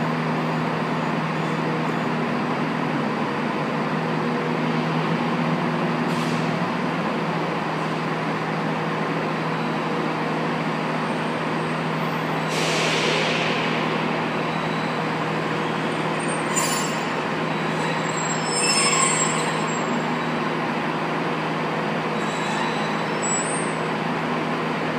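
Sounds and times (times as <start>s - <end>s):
diesel train engine humming: 0.0s - 24.9s
burst of hiss: 12.5s - 14.0s
short squeaks: 15.7s - 20.4s, 22.2s - 23.9s.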